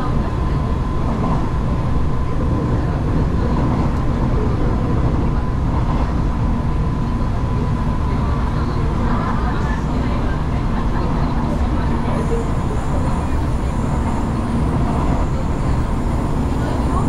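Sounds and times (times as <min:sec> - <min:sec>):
train wheels rumbling on rails: 0:00.0 - 0:17.0
faint steady whine: 0:12.0 - 0:17.0.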